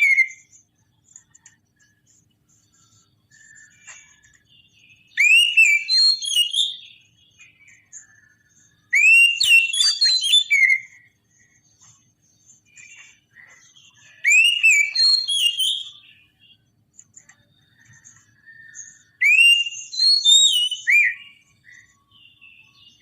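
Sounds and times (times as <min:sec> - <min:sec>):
bird singing whistled phrases: 0:00.0 - 0:00.5, 0:03.3 - 0:11.5, 0:12.7 - 0:16.7, 0:17.4 - 0:23.0
soft bird chirps: 0:00.0 - 0:23.0.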